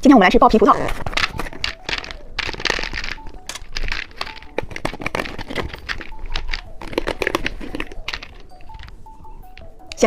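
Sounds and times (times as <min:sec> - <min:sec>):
plastic packaging crinkling: 0:00.6 - 0:10.0.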